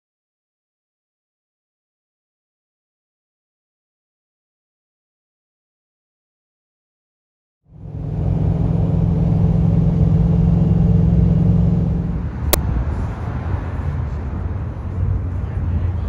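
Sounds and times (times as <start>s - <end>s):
vehicle engine rumbling: 7.7s - 15.5s.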